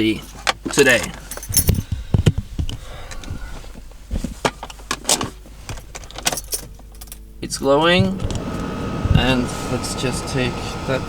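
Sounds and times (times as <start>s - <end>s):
clicks and knocks inside car: 0.2s - 7.0s.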